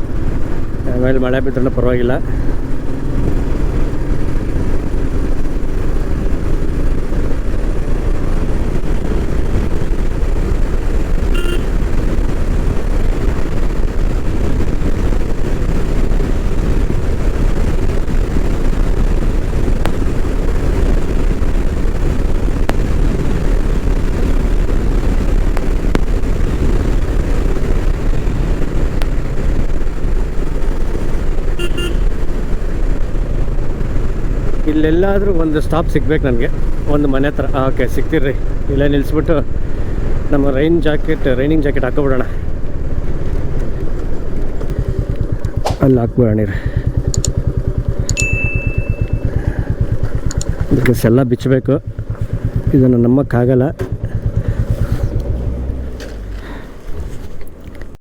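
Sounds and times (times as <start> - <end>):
motorcycle engine riding: 0.0 - 58.0
wind rush on microphone: 0.0 - 58.0
vehicle horn toots: 11.3 - 11.8, 31.5 - 32.2.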